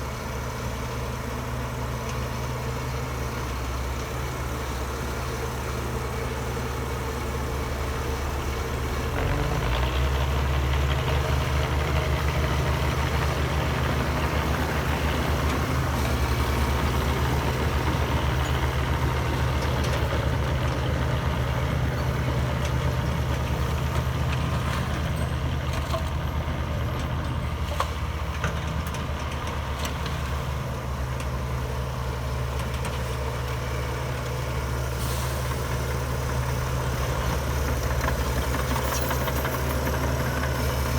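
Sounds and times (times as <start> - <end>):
heavy diesel engine droning: 0.0 - 40.9.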